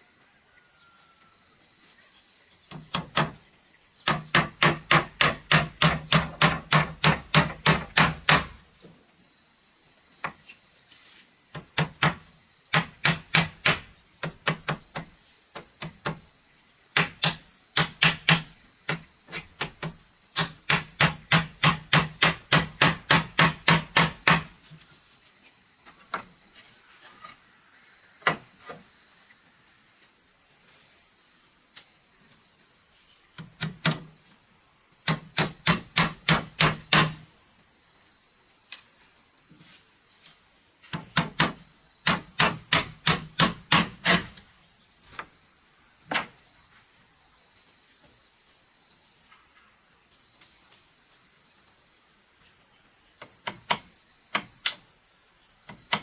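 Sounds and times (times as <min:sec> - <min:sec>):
high insect drone: 0:00.0 - 0:56.0
hammer striking wood: 0:04.0 - 0:08.6, 0:11.6 - 0:15.1, 0:17.0 - 0:24.5, 0:35.1 - 0:37.2, 0:40.9 - 0:44.4.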